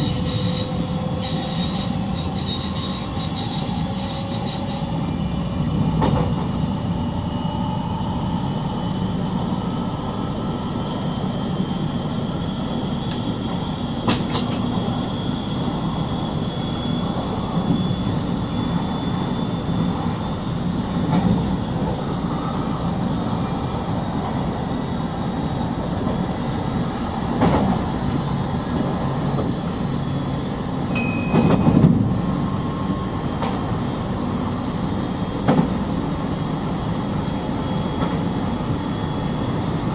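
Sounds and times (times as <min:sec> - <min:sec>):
train running low rumble: 0:00.0 - 0:39.9
brief high tone: 0:30.9 - 0:32.5.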